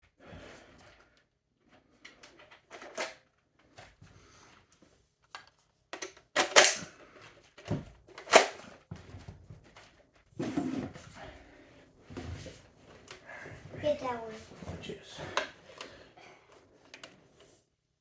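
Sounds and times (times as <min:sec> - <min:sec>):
plastic toy crossbow clacks: 0:02.1 - 0:03.3, 0:05.3 - 0:06.9, 0:07.6 - 0:08.6.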